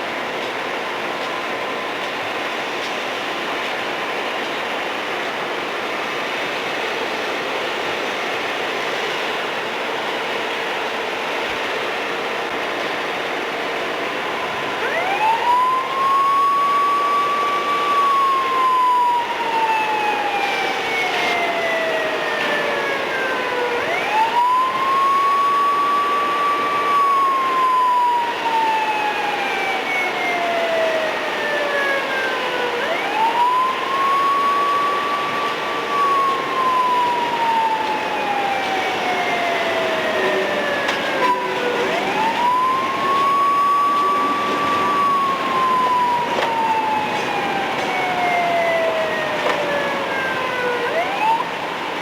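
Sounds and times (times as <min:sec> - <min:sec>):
mechanical siren wailing: 0:14.1 - 0:52.0.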